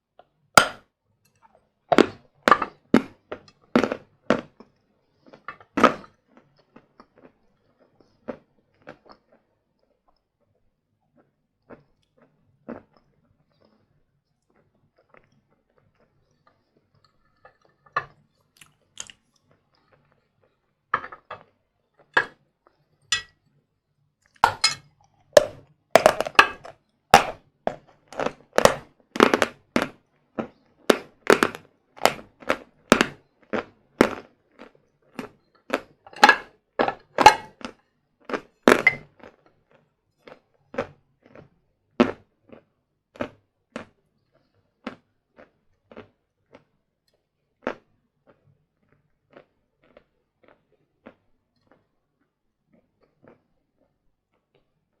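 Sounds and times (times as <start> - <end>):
chalk crunching when chewed: 11.1 - 20.6, 37.5 - 51.9.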